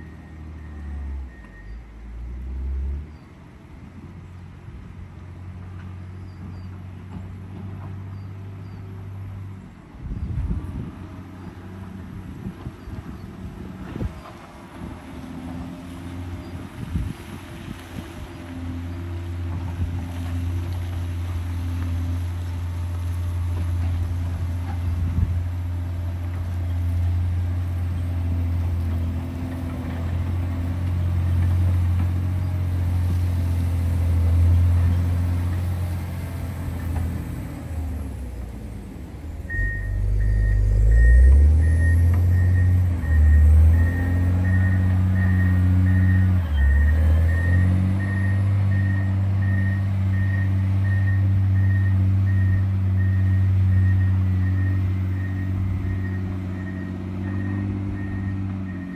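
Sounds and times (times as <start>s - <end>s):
diesel engine under load: 0.0s - 58.9s
reversing alarm beeping: 39.4s - 58.9s.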